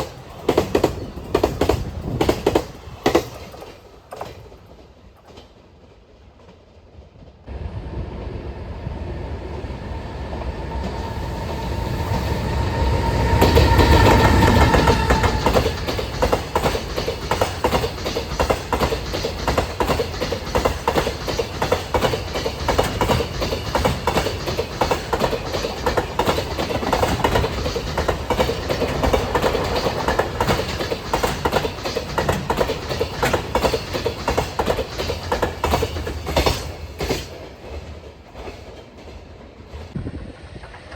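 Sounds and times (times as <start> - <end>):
train wheels clicking over rail joints: 0.0 - 7.4, 10.7 - 40.0
locomotive whine: 7.5 - 17.2, 39.9 - 40.9.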